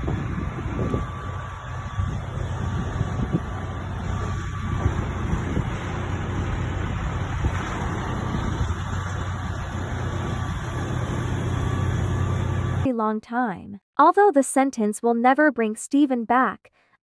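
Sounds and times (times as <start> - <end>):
vehicle engine humming: 0.0 - 12.9.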